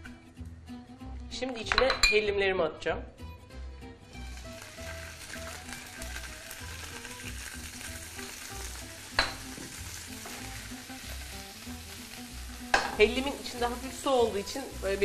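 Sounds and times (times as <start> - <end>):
cheese sizzling in a pan: 4.1 - 15.0.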